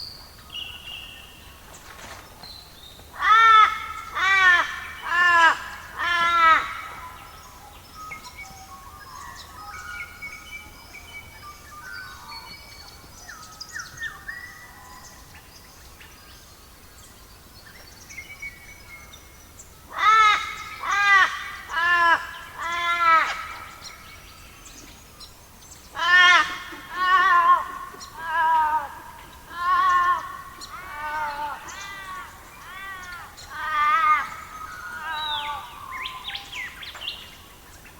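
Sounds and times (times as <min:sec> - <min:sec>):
small birds chirping: 0:00.0 - 0:37.9.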